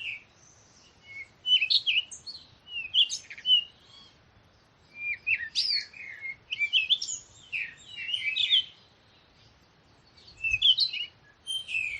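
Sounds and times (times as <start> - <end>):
songbird chirping: 0.0 - 11.9.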